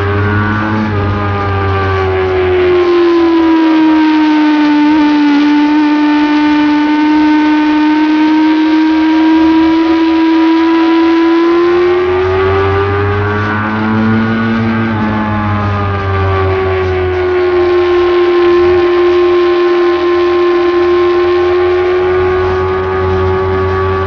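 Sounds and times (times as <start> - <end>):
motorcycle engine at high revs: 0.0 - 24.0.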